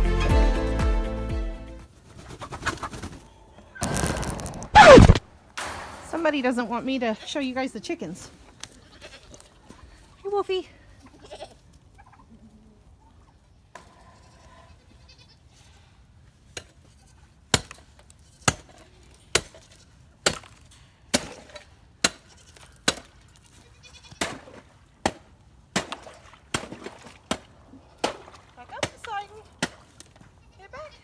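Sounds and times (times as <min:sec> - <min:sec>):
sharp knocks: 0:04.8 - 0:06.7
faint goat bleats: 0:10.9 - 0:11.6, 0:14.0 - 0:15.4, 0:30.4 - 0:31.0.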